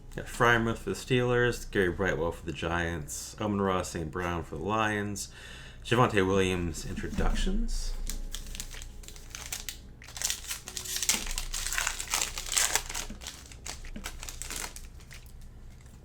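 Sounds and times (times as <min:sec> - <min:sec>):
foil wrapper crinkling and tearing: 0:08.0 - 0:16.0.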